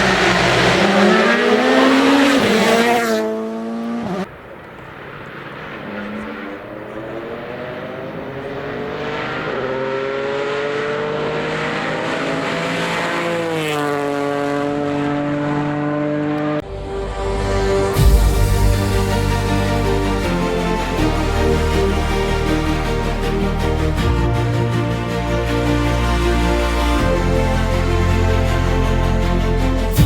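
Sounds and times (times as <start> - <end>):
rally car accelerating: 0.0 - 4.3, 4.9 - 16.7
rally car passing at full throttle: 0.0 - 17.6.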